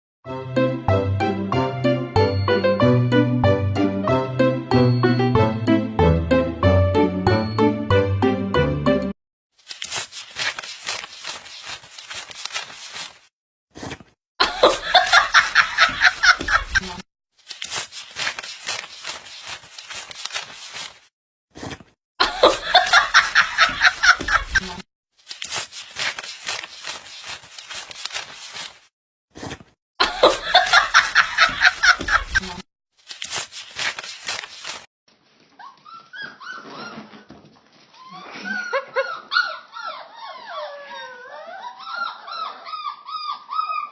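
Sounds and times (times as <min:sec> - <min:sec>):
puppies whining and howling: 0:35.6 - 0:37.3, 0:38.1 - 0:43.9.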